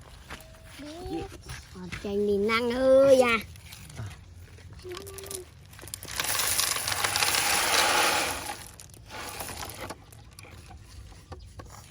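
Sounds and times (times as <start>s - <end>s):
small stones rattling out: 5.1s - 10.4s.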